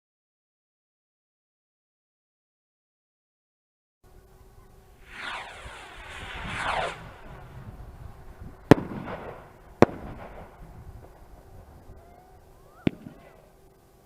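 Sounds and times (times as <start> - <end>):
firework bangs: 5.0 - 11.8, 12.7 - 13.4
firework whoosh: 5.0 - 11.8.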